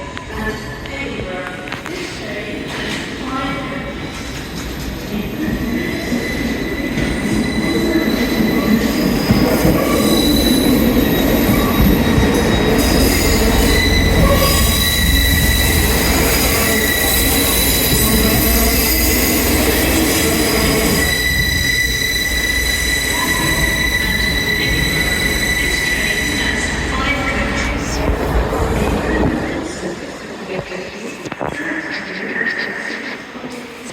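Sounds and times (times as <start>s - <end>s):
train low rumble: 2.5s - 31.5s
train wheels squealing: 4.0s - 28.1s.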